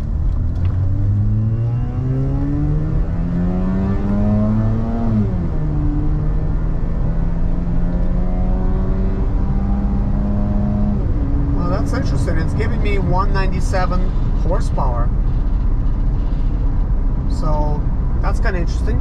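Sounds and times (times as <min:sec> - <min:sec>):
rotary engine accelerating: 0:00.0 - 0:15.1.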